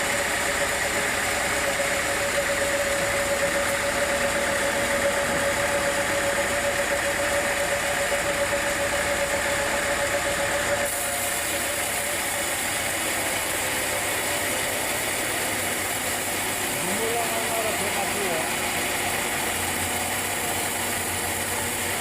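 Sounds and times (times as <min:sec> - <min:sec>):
high machine whine: 0:00.0 - 0:22.0
sawmill machinery drone: 0:00.0 - 0:22.0.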